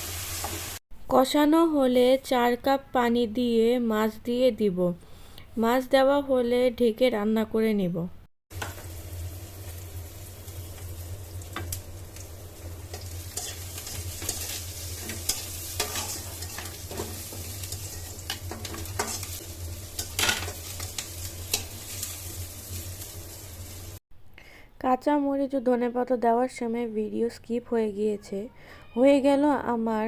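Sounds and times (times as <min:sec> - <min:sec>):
curry sizzling in a pan: 0:00.0 - 0:00.8, 0:08.5 - 0:24.0
spatula scraping a pan: 0:12.9 - 0:19.4.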